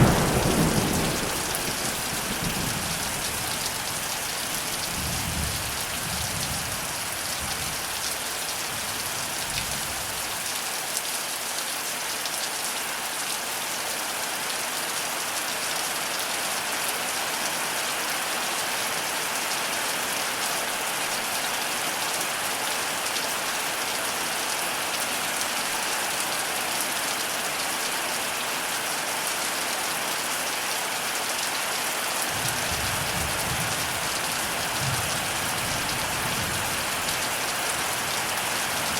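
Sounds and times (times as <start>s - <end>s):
thunder rumble: 0.0s - 5.7s
heavy rain pouring: 0.0s - 38.9s.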